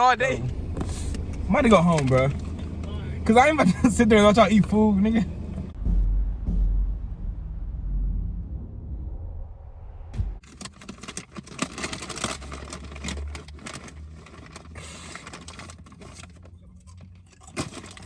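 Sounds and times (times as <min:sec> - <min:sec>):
car cabin rumble: 0:00.0 - 0:08.7
crackling clicking and rustling: 0:00.5 - 0:03.0, 0:10.4 - 0:18.0.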